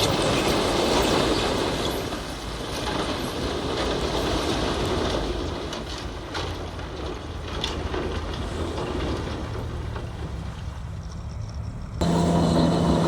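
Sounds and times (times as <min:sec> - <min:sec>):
bulldozer engine rumble: 0:00.0 - 0:13.0.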